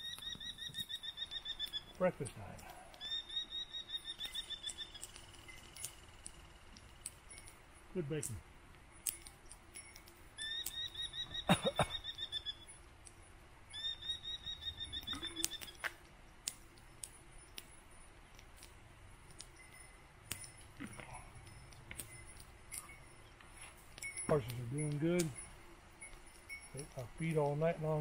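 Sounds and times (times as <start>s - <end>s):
clinks of breakfast things: 19.4s - 28.0s.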